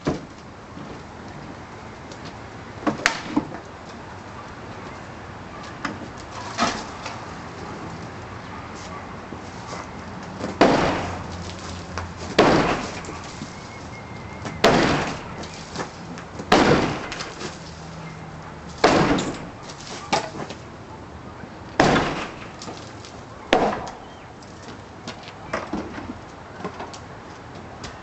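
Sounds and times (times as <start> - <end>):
breaking wood and falling debris: 6.2 - 7.2, 10.4 - 13.8, 14.4 - 18.0, 18.7 - 20.6, 21.8 - 24.0
hammer striking wood: 10.6 - 11.3, 12.4 - 13.1, 14.6 - 15.4, 18.8 - 19.4, 23.5 - 24.0.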